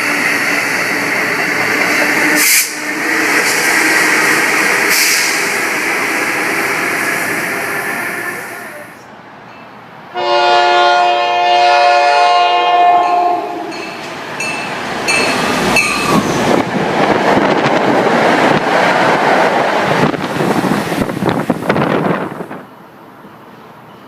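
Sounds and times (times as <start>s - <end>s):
train passing at speed: 0.0s - 24.0s
train horn blast: 1.8s - 5.5s, 10.1s - 13.9s.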